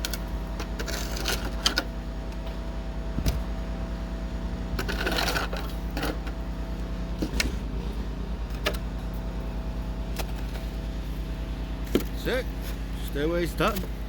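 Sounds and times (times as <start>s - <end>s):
low pulsing hum: 0.0s - 14.0s
snow shovel scraping: 4.8s - 6.2s, 12.1s - 14.0s.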